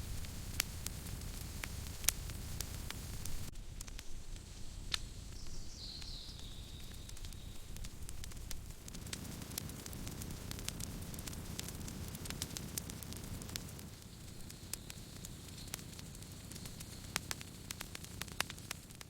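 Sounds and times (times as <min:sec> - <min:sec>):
low steady rumble: 0:00.0 - 0:04.9
thin high hiss: 0:00.0 - 0:10.6
campfire crackling and popping: 0:00.0 - 0:19.0.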